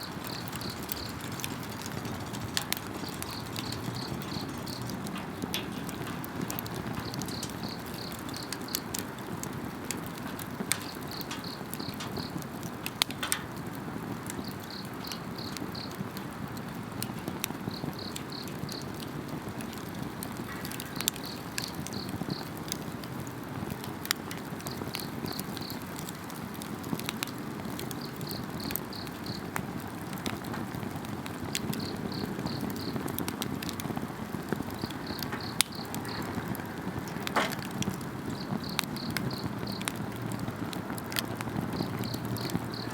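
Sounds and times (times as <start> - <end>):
insects chirping: 0.0 - 9.1, 10.7 - 12.4, 14.4 - 16.0, 38.3 - 40.0, 41.7 - 42.9
campfire crackling and popping: 0.0 - 42.9.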